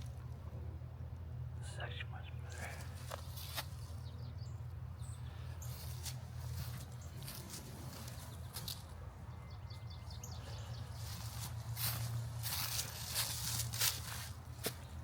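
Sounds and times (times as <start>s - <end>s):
steady low rumble: 0.0s - 15.0s
bird chirping: 3.4s - 12.6s.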